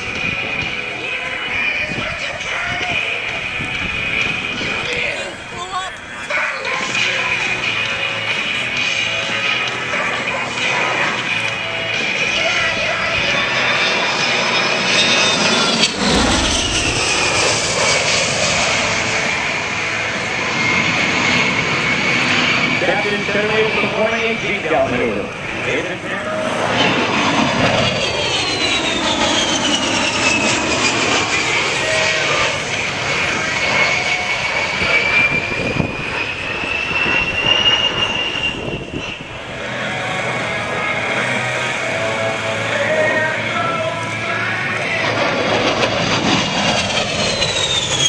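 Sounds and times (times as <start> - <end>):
jet engines whining as jet passes: 0.0 - 48.0.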